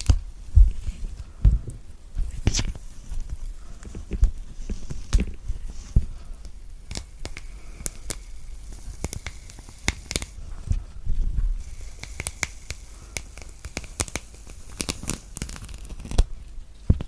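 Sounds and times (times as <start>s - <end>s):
soft low thumps: 0.2s - 2.5s
orange peel tearing: 11.6s - 16.3s.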